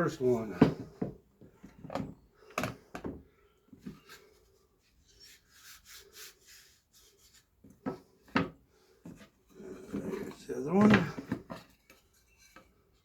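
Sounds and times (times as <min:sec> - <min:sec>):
wood rubbing and sliding: 0:09.1 - 0:13.0.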